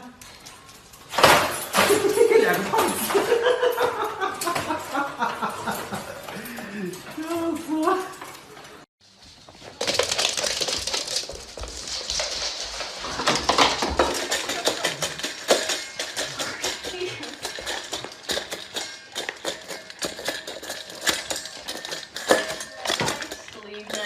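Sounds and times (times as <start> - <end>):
small hard objects clattering: 9.6 - 24.0.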